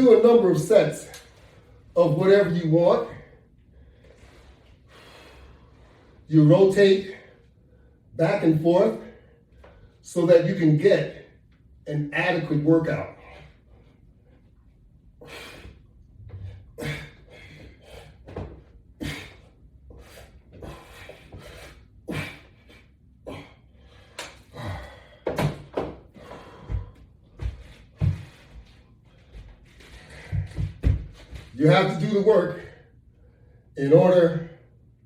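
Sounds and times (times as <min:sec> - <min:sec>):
knocks and thuds of workout bar: 0:25.2 - 0:26.1, 0:30.2 - 0:31.5.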